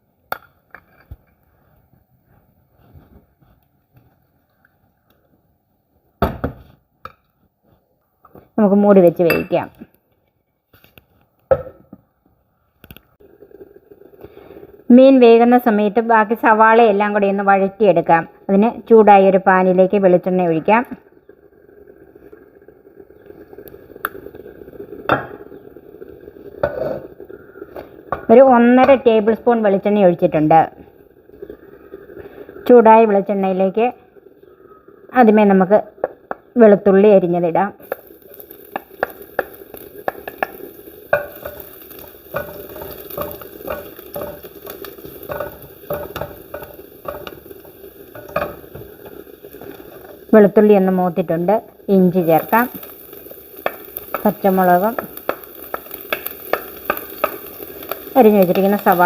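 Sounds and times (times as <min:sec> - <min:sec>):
oil hissing in hot pan: 0:13.2 - 0:59.0
utensil scraping and knocking pan: 0:38.8 - 0:47.5, 0:48.1 - 0:50.1.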